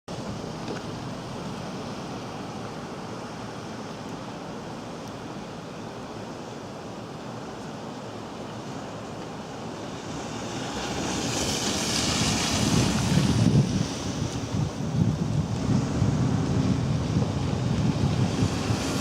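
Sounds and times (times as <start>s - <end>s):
wind buffeting microphone: 9.4s - 19.0s.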